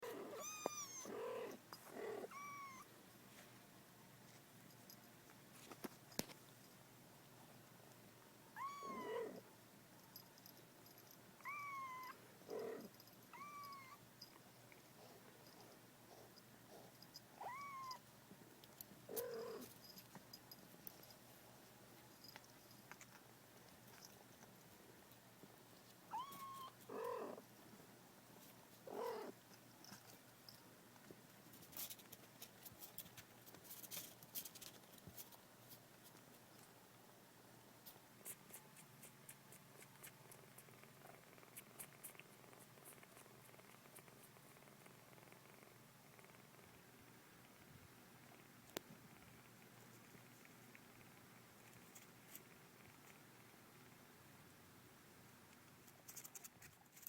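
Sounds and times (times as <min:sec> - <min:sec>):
cats mewing: 0:00.0 - 0:02.9, 0:08.6 - 0:09.4, 0:11.4 - 0:14.0, 0:17.4 - 0:18.0, 0:26.1 - 0:27.4, 0:28.9 - 0:29.4
rough low kitten sounds: 0:00.0 - 0:03.0, 0:08.5 - 0:14.4, 0:15.0 - 0:18.1, 0:19.0 - 0:20.0, 0:26.0 - 0:27.5, 0:28.8 - 0:30.2
faint clicks and rustles: 0:03.2 - 0:08.1, 0:17.9 - 0:37.0, 0:37.6 - 0:53.6, 0:55.4 - 0:57.0
kitten mewing: 0:08.6 - 0:09.4.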